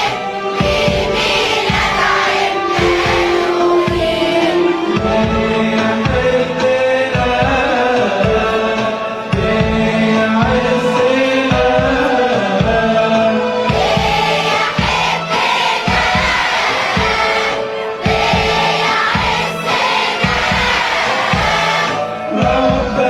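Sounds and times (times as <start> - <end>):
church choir singing a hymn: 0.0 - 9.0, 9.9 - 23.0
steady beat accompaniment: 0.0 - 23.0.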